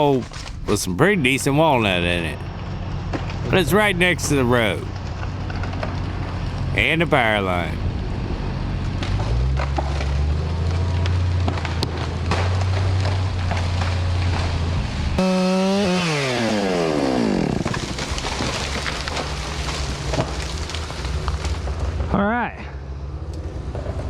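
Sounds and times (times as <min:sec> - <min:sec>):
chainsaw idling and revving: 0:15.2 - 0:19.6.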